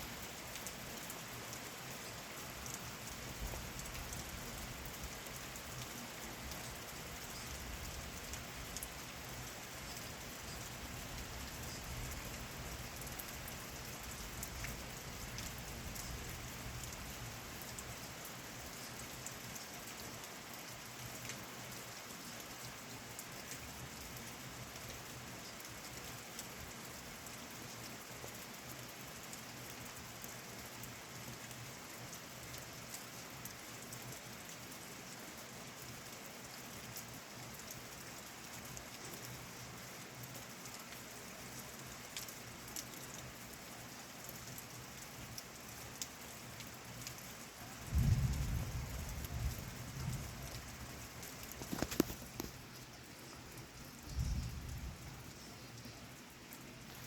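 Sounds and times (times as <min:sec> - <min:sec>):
rain falling: 0:00.0 - 0:57.0
low thunder rumble: 0:47.8 - 0:50.9, 0:54.1 - 0:55.2.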